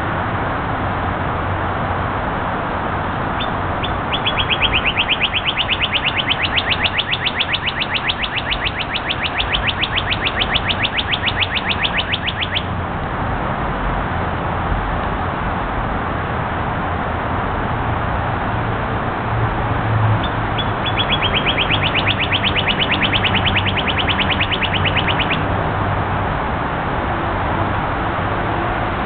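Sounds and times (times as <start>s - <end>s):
bird singing rapid trill: 3.4s - 12.7s, 20.2s - 25.5s.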